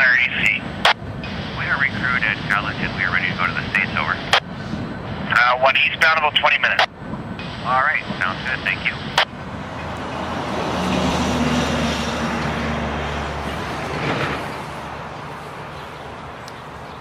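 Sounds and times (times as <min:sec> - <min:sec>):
vehicle passing by: 0:09.3 - 0:17.0.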